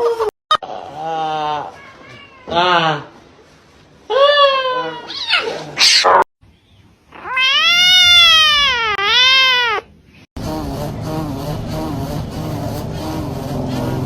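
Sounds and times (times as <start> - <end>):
cat yowling: 4.1 - 6.3, 7.1 - 9.9
steady noise: 10.4 - 14.0.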